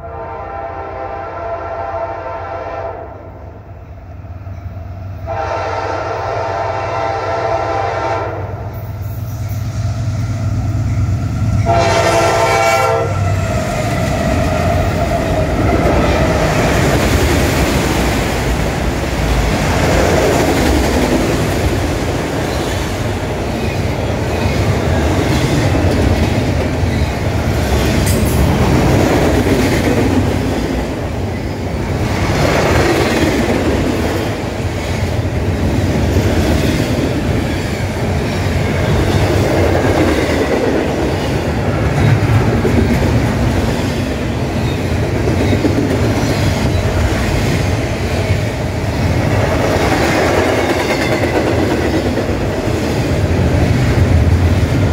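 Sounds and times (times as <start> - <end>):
locomotive horn blasts: 0.0 - 3.4, 5.3 - 8.5, 11.6 - 13.3
train wheel clatter: 13.4 - 54.9.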